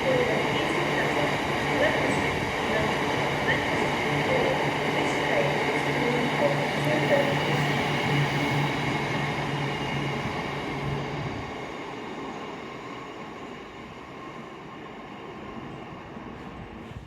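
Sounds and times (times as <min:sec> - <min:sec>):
train rumbling past: 0:14.8 - 0:17.0.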